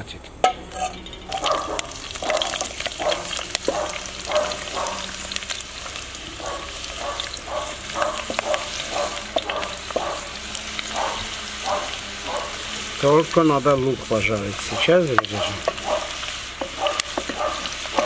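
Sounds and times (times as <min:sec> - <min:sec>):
onion sizzling in hot oil: 0:00.4 - 0:18.0
wooden spatula scraping bowl: 0:14.6 - 0:18.0.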